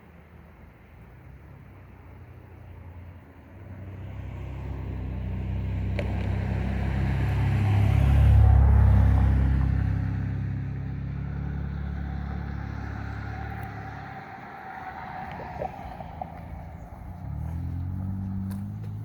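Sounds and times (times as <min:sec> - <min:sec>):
engine humming low: 0:00.0 - 0:19.0.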